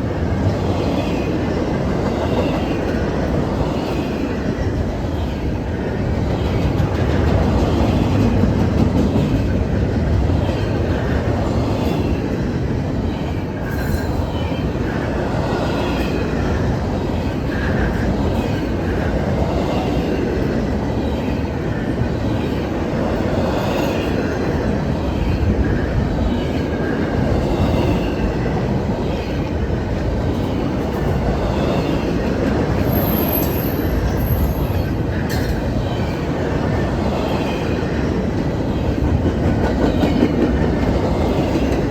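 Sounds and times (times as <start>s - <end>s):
train wheels rumbling on rail: 0.0s - 41.9s
steel wheels squealing: 32.8s - 35.6s.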